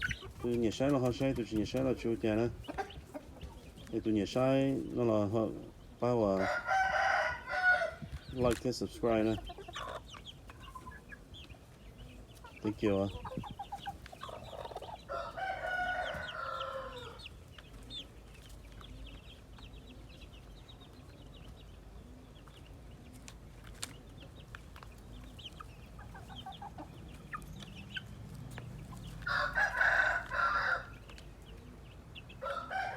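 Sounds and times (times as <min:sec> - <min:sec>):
chickens clucking and chirping: 0:00.0 - 0:32.9
rooster crowing: 0:06.4 - 0:08.0, 0:15.1 - 0:17.2, 0:29.2 - 0:31.0, 0:32.4 - 0:32.9.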